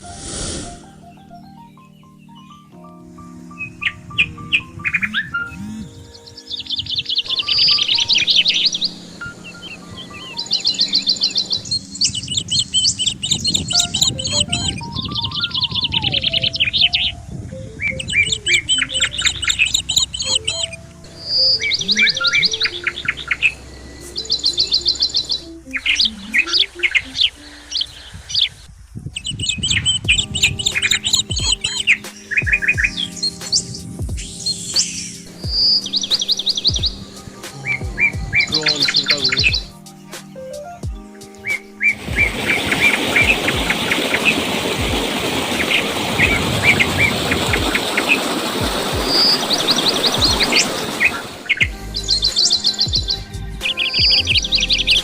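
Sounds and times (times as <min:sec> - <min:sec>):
steady rushing noise: 0:00.0 - 0:00.9, 0:40.8 - 0:54.4
soft low melody: 0:00.0 - 0:28.3, 0:29.3 - 0:55.0
small birds chirping: 0:00.8 - 0:55.0.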